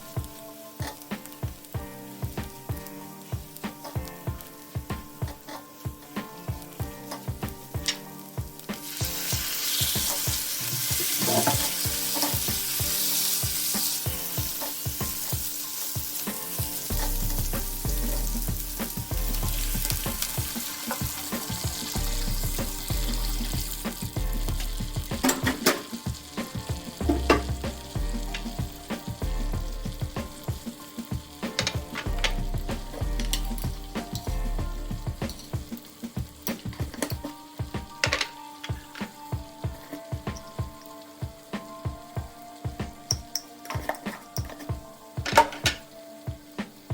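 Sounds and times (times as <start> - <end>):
food sizzling in a frying pan: 0.0 - 46.9
music with pulsing beat: 0.0 - 46.9
utensil knocking against pan: 9.9 - 12.6, 25.1 - 27.8.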